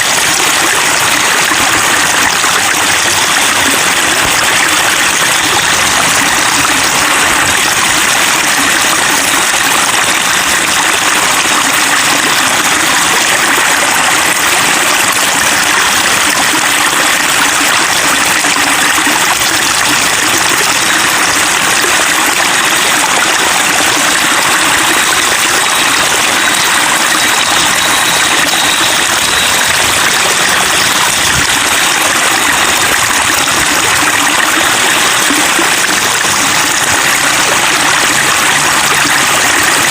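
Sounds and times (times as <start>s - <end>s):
running water babbling: 0.0s - 39.9s.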